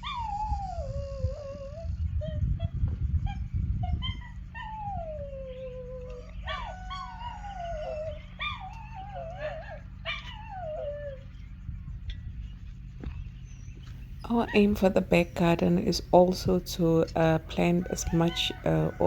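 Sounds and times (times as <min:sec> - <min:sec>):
dog whining and howling: 0:00.0 - 0:11.6.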